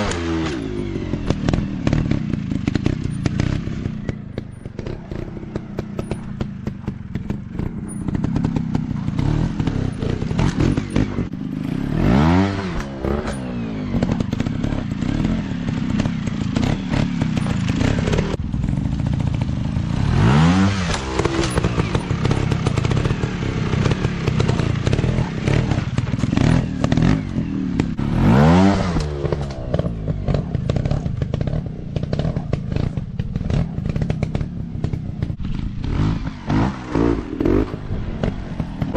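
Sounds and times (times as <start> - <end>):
dirt bike engine revving: 0.0 - 38.9
dirt bike engines: 0.0 - 38.9.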